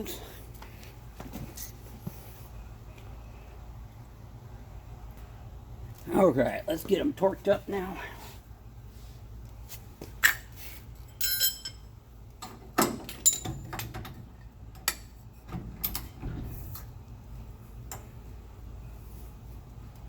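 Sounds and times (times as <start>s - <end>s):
short ringing metal clink: 11.1s - 11.9s.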